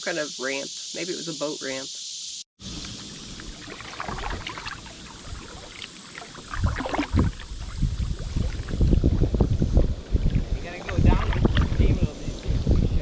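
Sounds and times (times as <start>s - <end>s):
paddle splashing in water: 2.8s - 11.9s.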